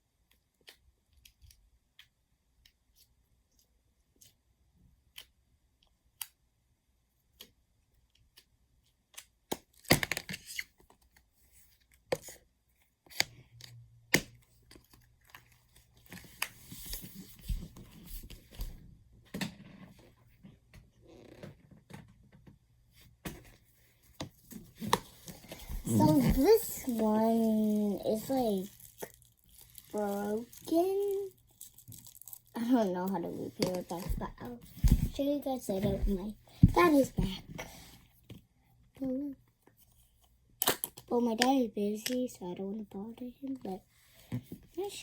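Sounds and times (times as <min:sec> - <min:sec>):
slime crackling and crinkling: 0:25.1 - 0:37.1.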